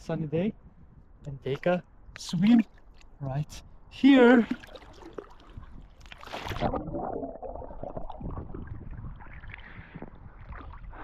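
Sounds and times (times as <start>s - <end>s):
water splashing and sloshing: 2.2s - 3.3s, 4.2s - 11.0s.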